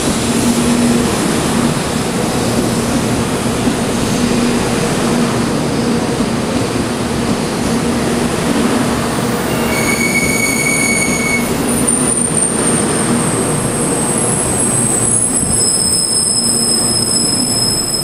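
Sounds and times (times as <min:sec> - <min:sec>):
train wheels rumbling on rail: 0:00.0 - 0:18.0
high wheel squeals: 0:09.5 - 0:18.0.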